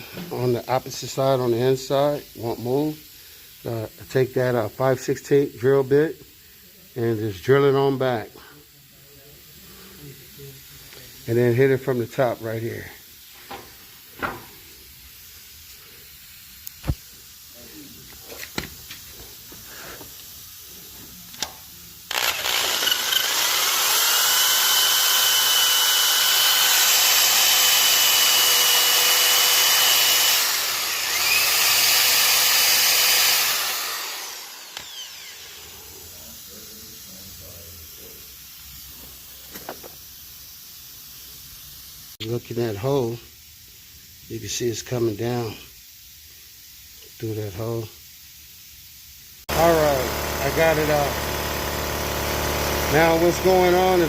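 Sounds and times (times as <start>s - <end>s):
power drill whining: 22.1s - 36.0s, 49.5s - 54.0s.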